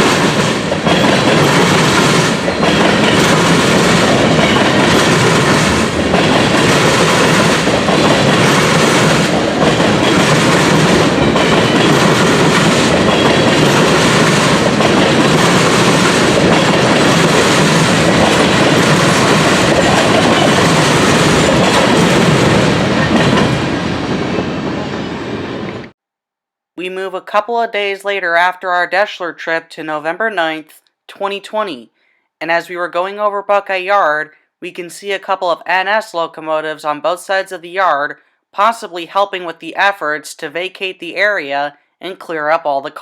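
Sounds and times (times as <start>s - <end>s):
train cars rolling past: 0.0s - 25.9s.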